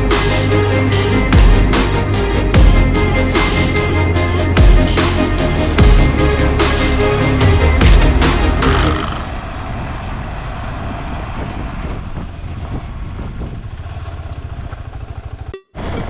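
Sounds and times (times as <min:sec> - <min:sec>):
music: 0:00.0 - 0:09.3, 0:15.5 - 0:16.0
road and wind noise: 0:08.9 - 0:16.0
motorcycle engine running: 0:13.5 - 0:15.9.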